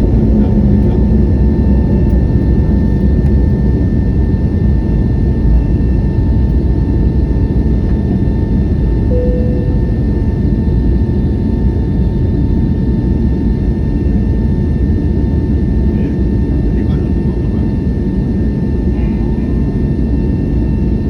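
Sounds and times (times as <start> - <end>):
jet engine rumble and whine: 0.0 - 21.0
short tone: 9.1 - 10.4.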